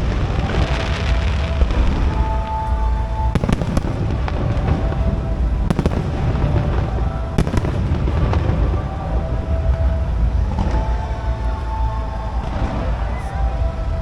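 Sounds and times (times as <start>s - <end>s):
fireworks bangs and crackles: 0.0s - 2.7s, 3.3s - 9.0s
low rumble: 0.0s - 14.0s.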